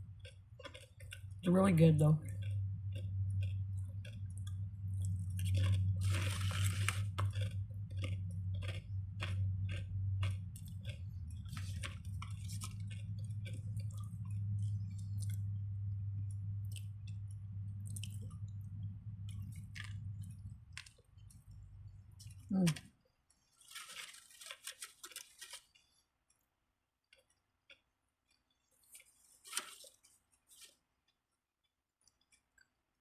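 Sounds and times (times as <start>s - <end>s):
person chewing a sandwich: 0.0s - 1.4s, 2.3s - 33.0s
steady low hum: 0.0s - 22.9s.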